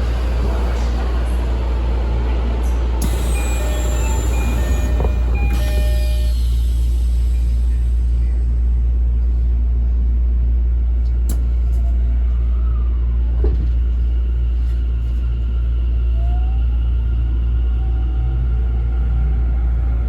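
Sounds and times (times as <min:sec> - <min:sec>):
subway train running rumble: 0:00.0 - 0:20.0
faint whine: 0:03.0 - 0:08.6.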